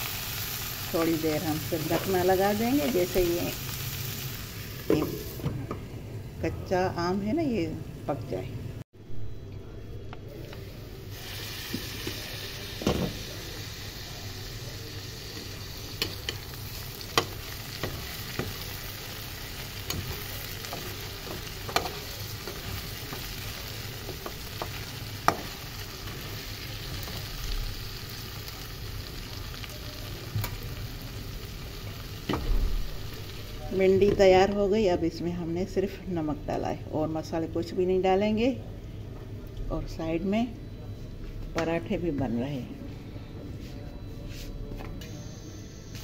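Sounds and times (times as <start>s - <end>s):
vegetables sizzling in a pan: 0.0s - 5.5s, 10.5s - 34.8s.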